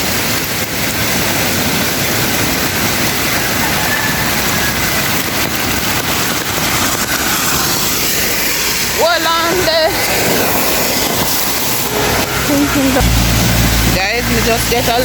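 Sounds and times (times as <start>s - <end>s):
floodwater running over road: 0.0s - 15.0s
heavy rain: 0.0s - 15.0s.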